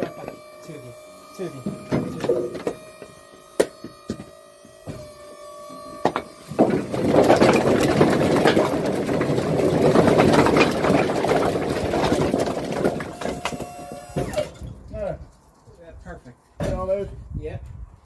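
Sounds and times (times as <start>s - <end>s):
logs tumbling and clattering: 5.8s - 15.0s.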